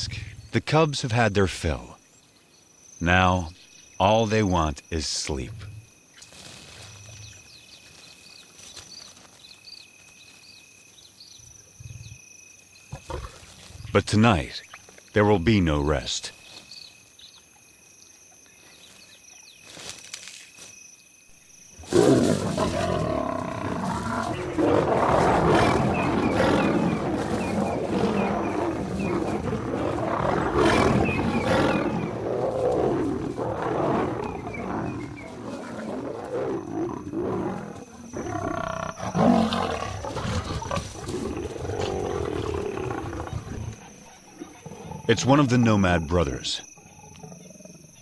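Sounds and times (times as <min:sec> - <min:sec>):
crickets chirring: 0:00.0 - 0:48.0
lions snarling and growling: 0:12.9 - 0:14.5, 0:21.8 - 0:48.0.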